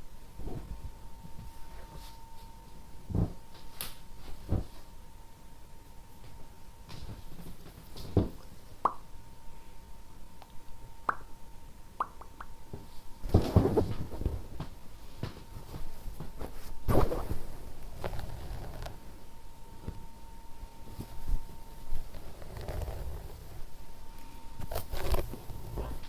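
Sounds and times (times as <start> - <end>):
faint steady whine: 0.0 - 26.0
rustling and tapping: 12.7 - 19.2, 20.8 - 26.0.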